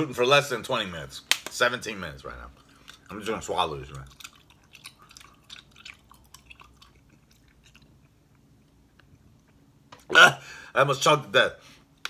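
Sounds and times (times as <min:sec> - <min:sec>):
mouth chewing clicks and smacks: 0:03.8 - 0:09.7.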